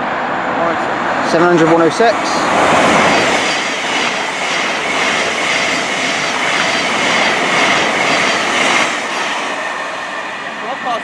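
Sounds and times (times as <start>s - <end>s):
train wheels rushing on rail: 0.0s - 11.0s.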